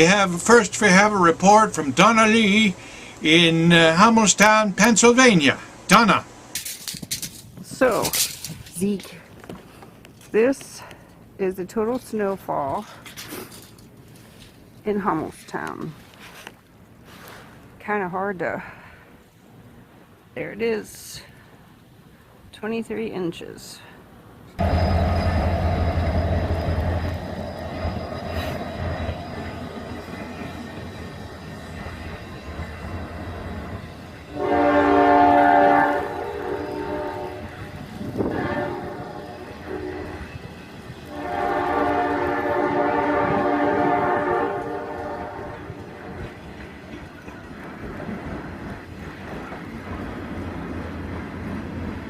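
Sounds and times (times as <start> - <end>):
train rumbling past: 0.0 - 6.6, 24.6 - 52.0
train horn: 24.6 - 29.5, 34.3 - 46.3.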